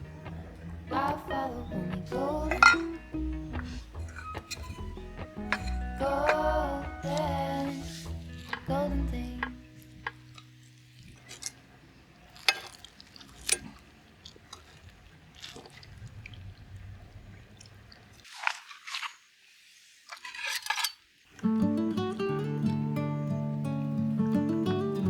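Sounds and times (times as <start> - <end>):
soft crunching and rustling: 1.9 - 21.4.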